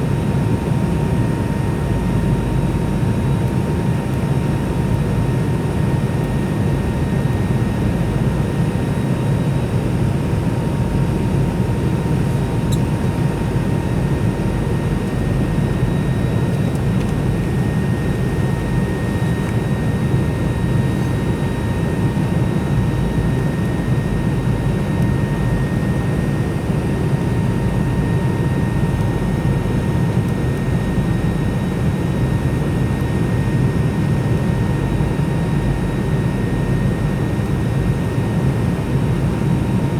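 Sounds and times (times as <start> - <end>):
jet engine and airflow rush: 10.2 - 28.8.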